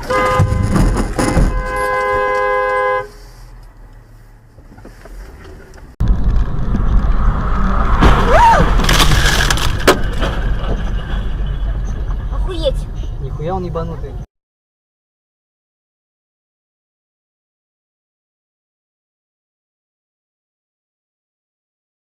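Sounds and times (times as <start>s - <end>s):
car horn blaring: 0.0s - 3.4s
car and road noise: 0.0s - 14.3s.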